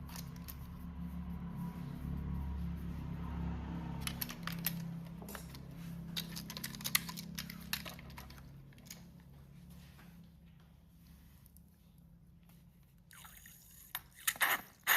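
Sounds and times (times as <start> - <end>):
light clicks and rattles: 4.0 - 9.5.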